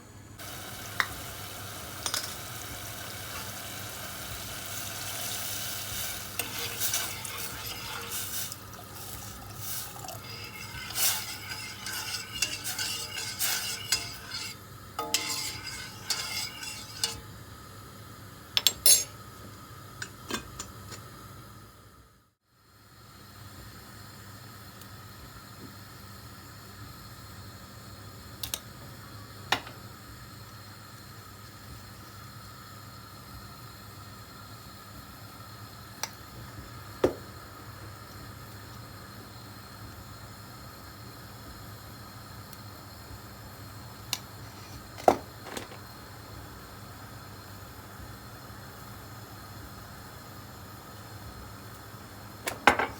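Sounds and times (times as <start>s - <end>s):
utensil clinking and scraping pan: 0.4s - 17.3s
food sizzling in a pan: 0.4s - 18.4s.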